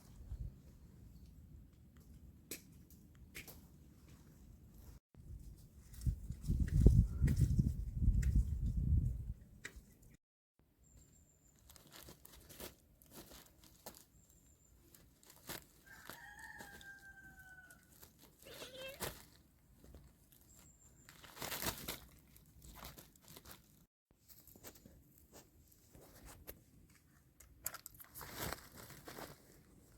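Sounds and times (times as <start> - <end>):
rooster crowing: 15.8 - 17.9.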